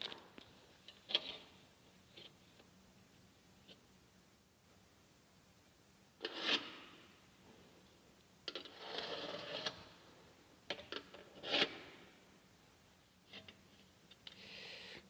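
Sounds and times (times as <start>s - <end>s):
scraping and rubbing: 8.5s - 9.8s.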